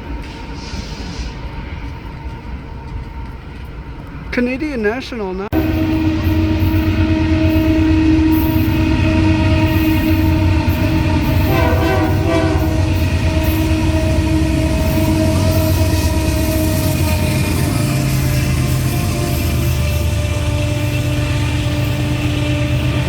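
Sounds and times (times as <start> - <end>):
freight train rumbling past: 0.0 - 23.0
horn blast: 11.3 - 17.9.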